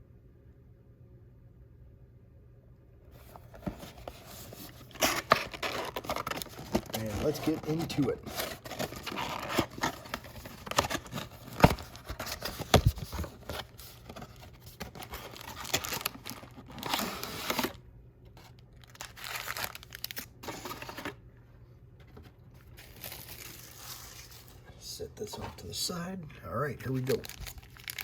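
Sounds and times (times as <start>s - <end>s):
plastic wrap tearing and crinkling: 4.0s - 17.8s, 18.5s - 21.1s, 22.7s - 24.6s, 26.9s - 28.0s.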